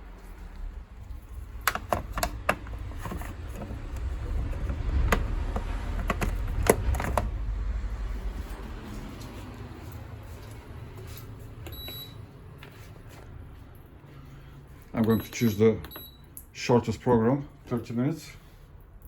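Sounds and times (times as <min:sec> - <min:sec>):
clicks and knocks of handling: 0:01.6 - 0:07.3
low rumble: 0:02.6 - 0:10.9.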